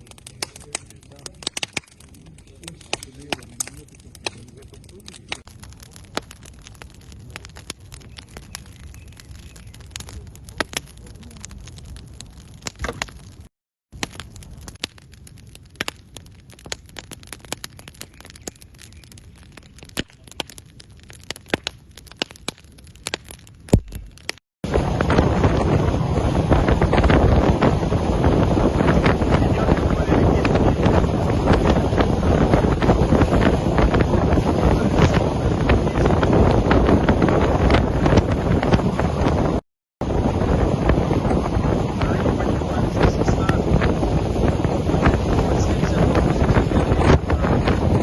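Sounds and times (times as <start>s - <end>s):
campfire crackling: 0.0s - 48.0s
wind buffeting microphone: 24.7s - 48.0s.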